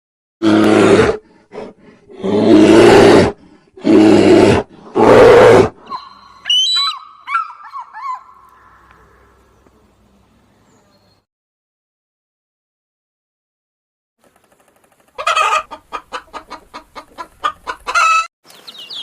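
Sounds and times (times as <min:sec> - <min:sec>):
lion roaring: 0:00.4 - 0:05.9
high chirping calls: 0:05.9 - 0:11.2, 0:18.4 - 0:19.0.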